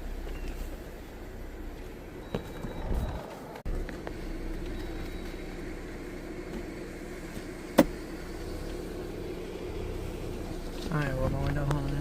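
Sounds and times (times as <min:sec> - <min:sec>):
pickup truck engine running: 0:03.6 - 0:12.0.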